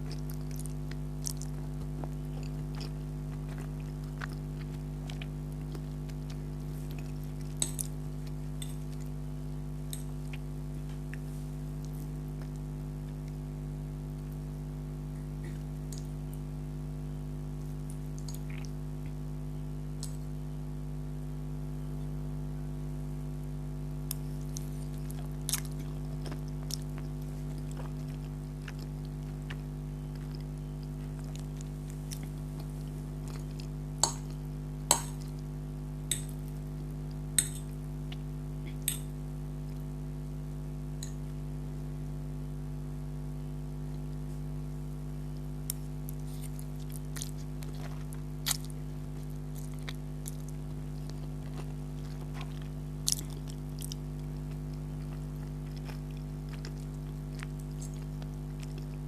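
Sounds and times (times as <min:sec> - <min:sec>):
chewing spaghetti: 0:00.0 - 0:09.2, 0:24.1 - 0:39.1, 0:45.7 - 0:59.0
steady low hum: 0:00.0 - 0:59.0.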